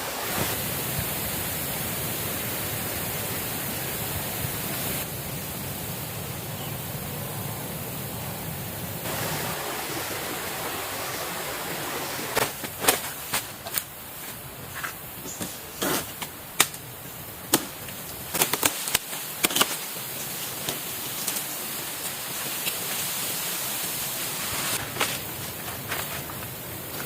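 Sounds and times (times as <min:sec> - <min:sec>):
river rushing: 0:00.0 - 0:12.9.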